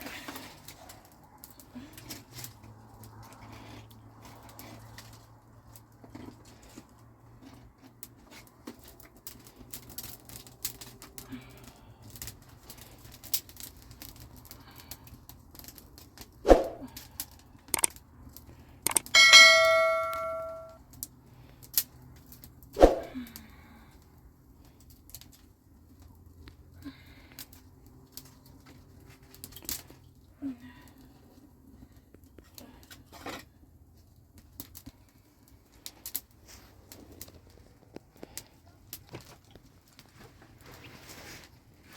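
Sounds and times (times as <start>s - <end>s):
metal object ringing: 18.9s - 20.8s.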